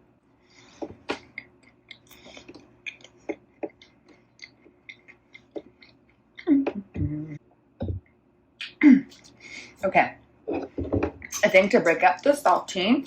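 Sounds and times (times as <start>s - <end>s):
chewing popcorn: 1.2s - 6.5s
mouth sounds: 6.4s - 8.0s.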